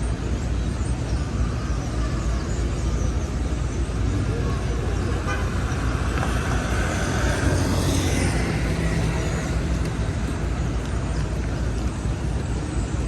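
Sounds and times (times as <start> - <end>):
street traffic rumble: 0.0 - 13.0
vehicle passing: 4.5 - 12.1.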